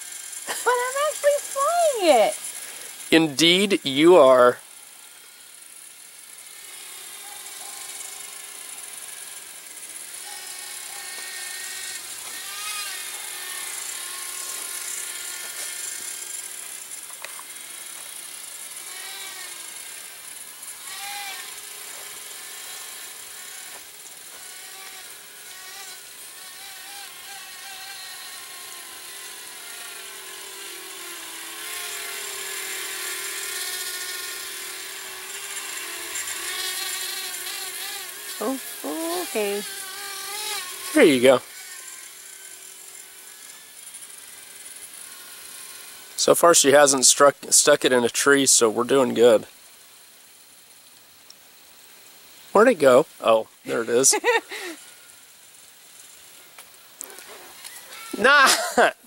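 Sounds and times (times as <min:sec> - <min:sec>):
small quadcopter whining: 0:00.0 - 0:59.0.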